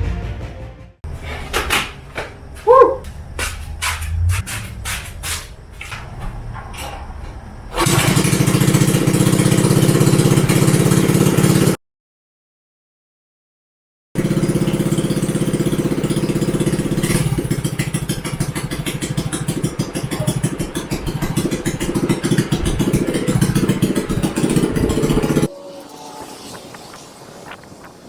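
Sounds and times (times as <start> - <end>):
loud single-cylinder engine running: 5.8 - 11.8, 14.2 - 26.0.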